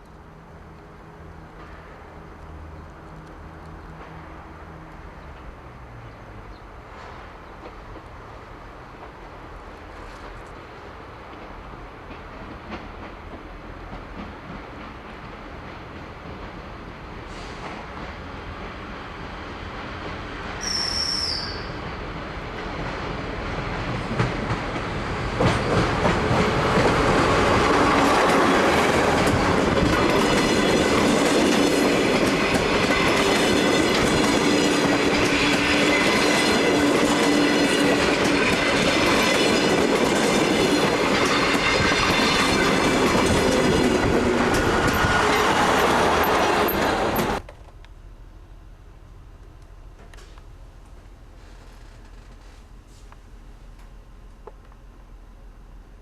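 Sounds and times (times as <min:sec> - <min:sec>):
train running on rails: 0:00.1 - 0:56.0
brief high whistle: 0:20.6 - 0:21.8
high wheel squeal: 0:20.6 - 0:21.8
wheels clacking over rail joints: 0:23.6 - 0:47.7.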